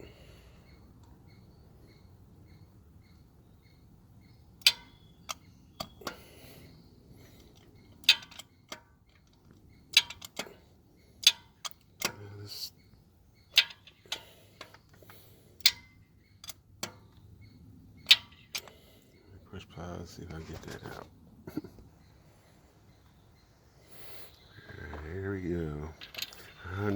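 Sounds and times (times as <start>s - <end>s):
faint steady ticking: 0.0s - 20.3s
ratchet wrench clicking: 7.4s - 9.3s, 9.9s - 10.6s.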